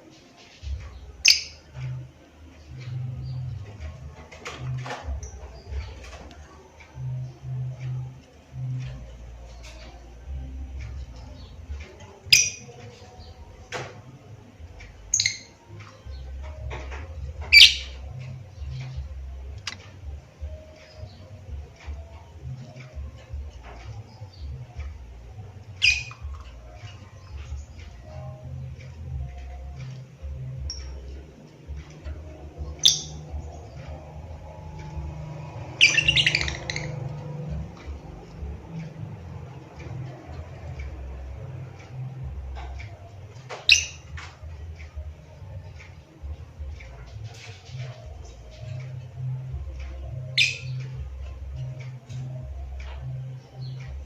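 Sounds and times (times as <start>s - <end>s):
bird chirps and twitters: 0.6s - 13.8s, 14.8s - 54.0s
lovebird chirping: 1.1s - 1.9s, 11.2s - 13.6s, 14.9s - 16.6s, 17.4s - 19.8s, 25.7s - 37.9s, 43.4s - 44.2s, 50.0s - 51.9s
shrill bird calls: 17.5s - 18.0s, 25.8s - 26.3s, 35.8s - 36.9s, 50.4s - 50.8s.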